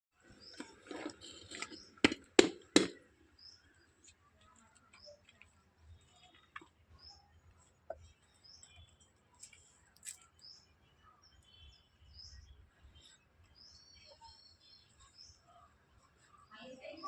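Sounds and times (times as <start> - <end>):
faint bird chirps: 3.4 - 17.0.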